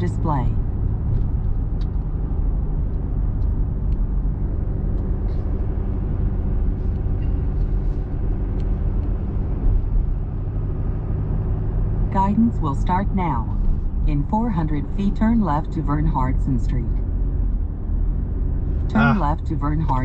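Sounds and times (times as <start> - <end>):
truck engine hum and road noise: 0.0 - 20.0.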